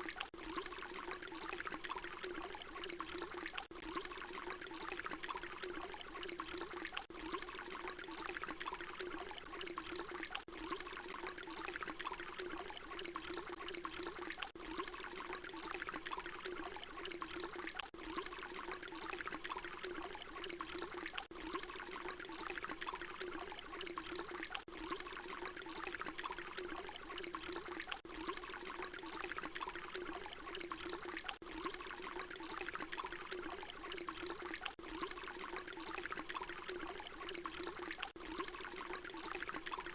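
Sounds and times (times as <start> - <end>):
water pouring: 0.0 - 39.9.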